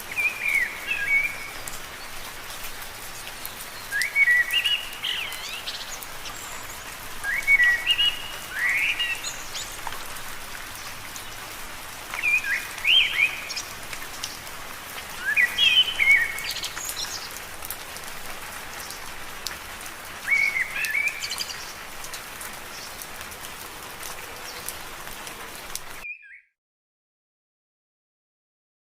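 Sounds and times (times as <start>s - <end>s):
rain falling on leaves: 0.0s - 26.0s
bird chirping: 3.4s - 9.9s, 12.2s - 14.2s, 15.2s - 17.4s, 26.0s - 26.5s.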